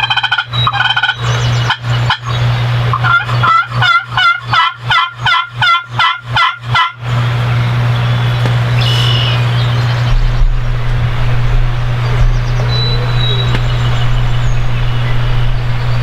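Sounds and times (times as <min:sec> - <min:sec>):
wild turkey yelping: 0:00.0 - 0:07.0, 0:08.7 - 0:09.9
steady low hum: 0:00.0 - 0:16.0.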